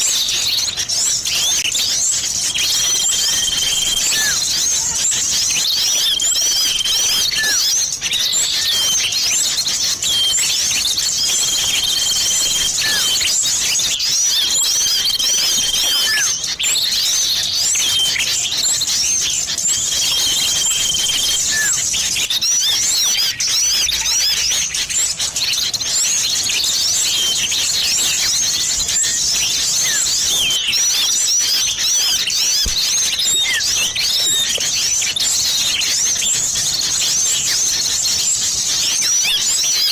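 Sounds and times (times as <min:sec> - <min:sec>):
long steady whistles: 0:00.0 - 0:24.8
small birds chirping: 0:00.0 - 0:39.9.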